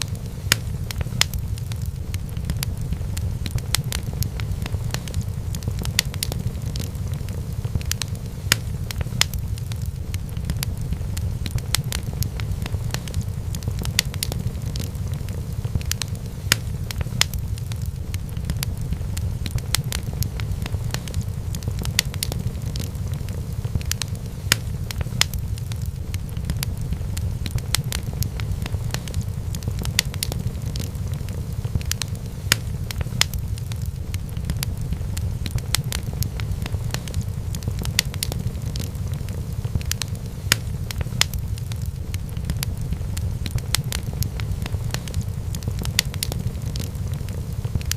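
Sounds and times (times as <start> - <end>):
wood fire crackling: 0.0 - 47.9
low rumble: 32.7 - 39.8, 40.7 - 47.9.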